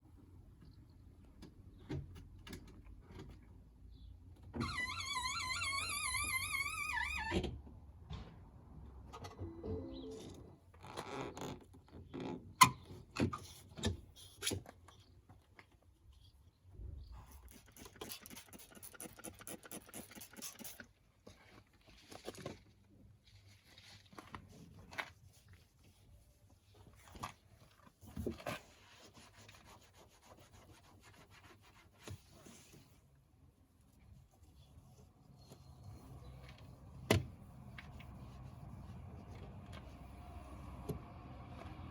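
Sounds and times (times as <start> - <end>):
rubbing and scraping: 33.8 - 40.1.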